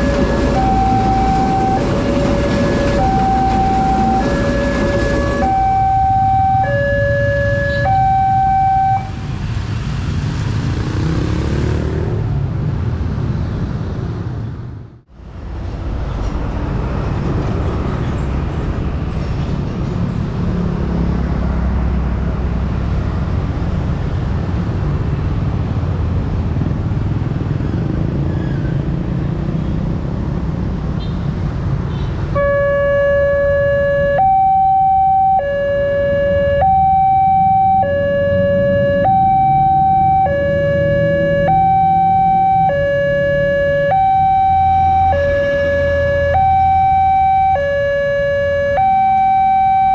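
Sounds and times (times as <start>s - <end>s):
two-tone crossing alarm: 0.0s - 9.2s, 32.4s - 49.9s
rumble of passing vehicles: 0.0s - 49.9s.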